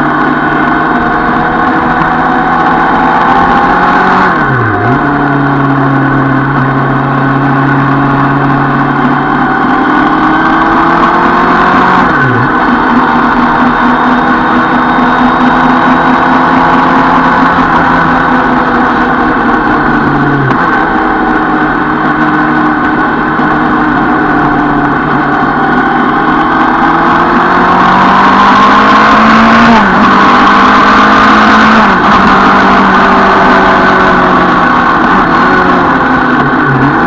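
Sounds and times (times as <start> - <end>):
motorcycle engine accelerating: 0.0 - 37.0.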